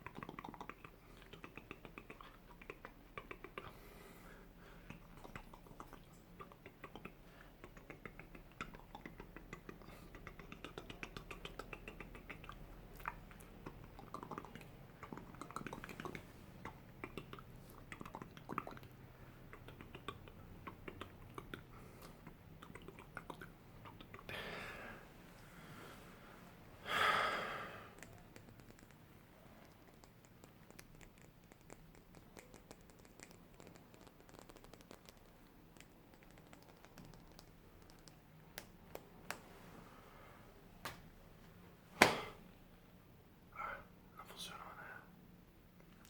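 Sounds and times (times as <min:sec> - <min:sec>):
wet mouth clicks and smacks: 0:00.0 - 0:03.7, 0:04.9 - 0:24.3, 0:28.0 - 0:39.4
person breathing: 0:03.6 - 0:05.0, 0:24.3 - 0:28.0.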